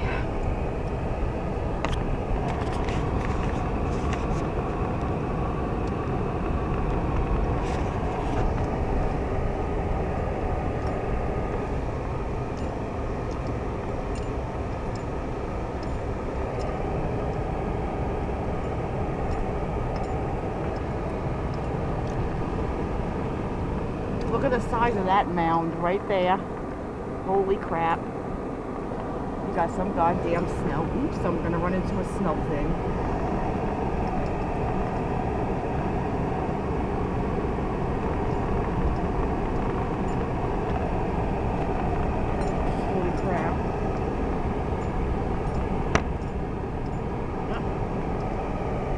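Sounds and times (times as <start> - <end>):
car engine and tyres rumbling: 0.0 - 48.9
faint ticks: 19.3 - 22.2.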